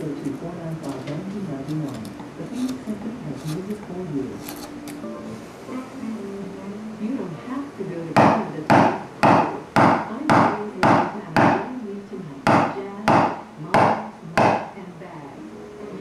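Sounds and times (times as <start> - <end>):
mallet striking a carving gouge: 8.2 - 11.6, 12.5 - 14.7.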